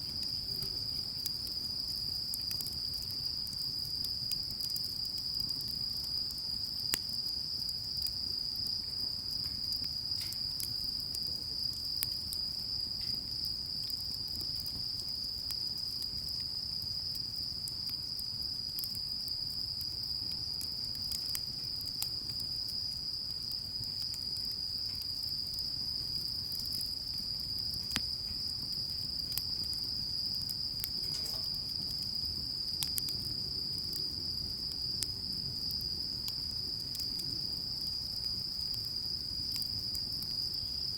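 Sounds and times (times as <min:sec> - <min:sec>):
crickets chirring: 0:00.0 - 0:40.9.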